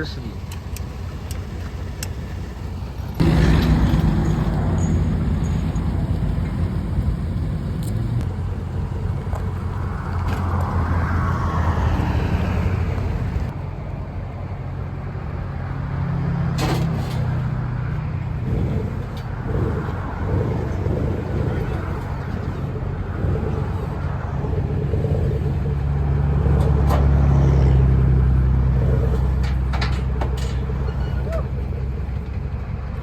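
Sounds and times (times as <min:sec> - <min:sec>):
vehicle engine humming: 0:00.0 - 0:33.0.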